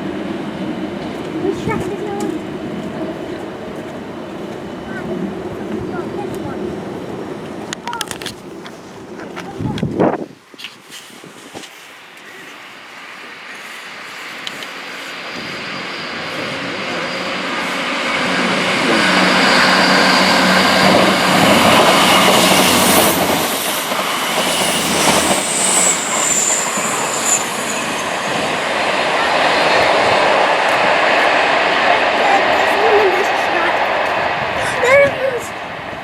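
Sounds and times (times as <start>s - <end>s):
train wheels rumbling on rails: 0.0s - 36.0s
high wheel squeal: 13.5s - 28.8s.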